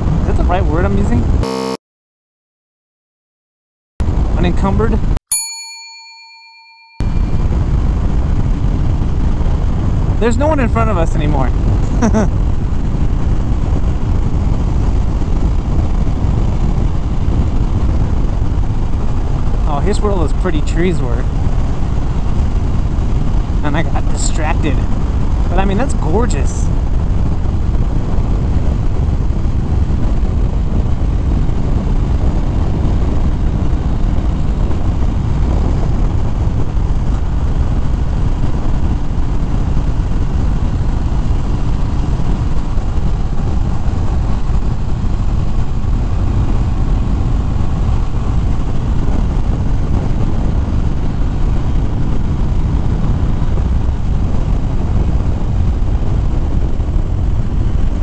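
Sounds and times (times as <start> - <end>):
wind rush on microphone: 0.0 - 1.4, 4.0 - 5.2, 7.0 - 58.0
motorcycle engine droning: 0.0 - 1.8.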